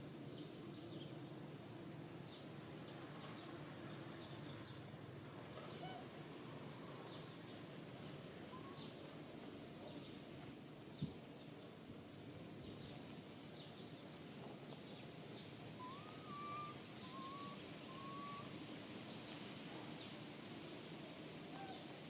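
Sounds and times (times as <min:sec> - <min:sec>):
steady low hiss: 0:00.0 - 0:22.0
short whistled calls: 0:15.8 - 0:18.5.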